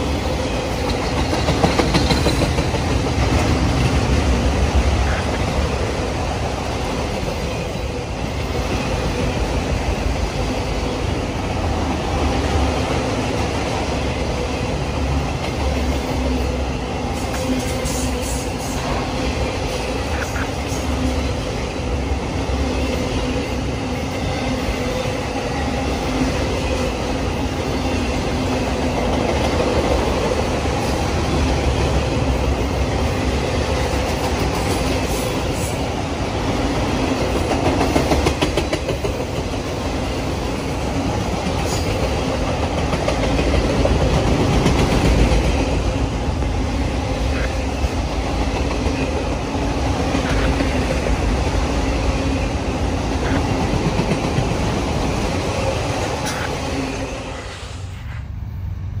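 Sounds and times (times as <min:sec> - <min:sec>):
train cars rumbling on rails: 0:00.0 - 0:59.0.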